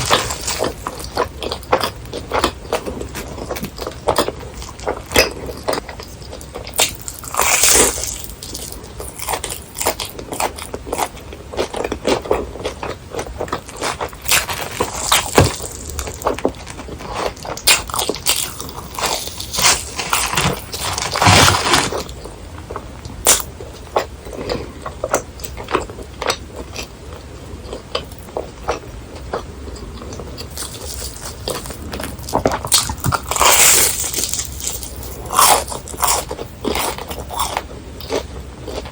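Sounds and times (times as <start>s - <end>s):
crunching crispy fried food: 0.0s - 38.9s.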